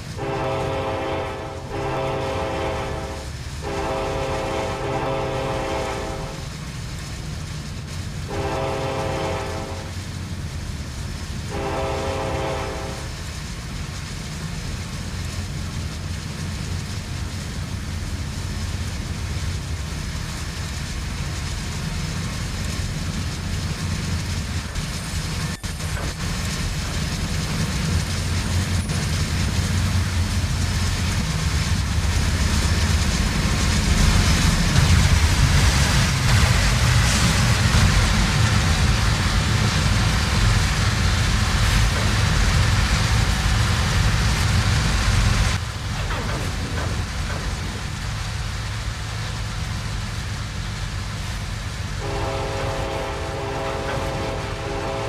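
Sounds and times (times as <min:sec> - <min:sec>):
train rumble and wheels on rails: 0:00.0 - 0:55.0
locomotive air horn blasts: 0:00.2 - 0:06.4, 0:08.3 - 0:09.9, 0:11.5 - 0:13.1, 0:52.0 - 0:55.0.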